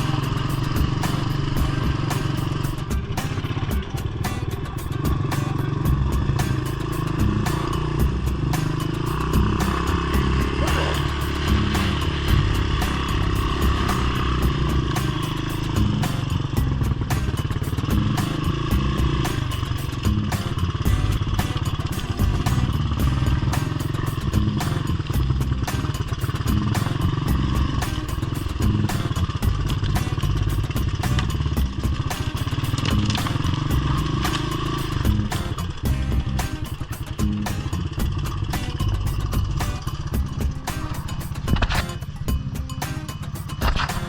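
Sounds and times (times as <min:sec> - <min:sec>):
small four-stroke engine running: 0:00.0 - 0:21.9.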